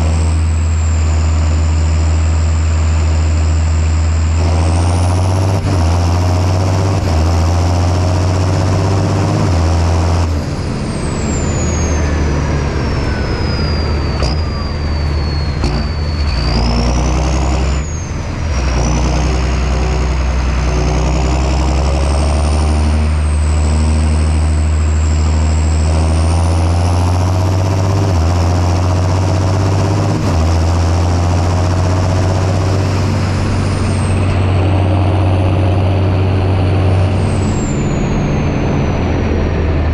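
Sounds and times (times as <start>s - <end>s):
tractor diesel engine running: 0.0s - 39.9s
thin high whine: 10.5s - 16.9s, 32.8s - 39.8s.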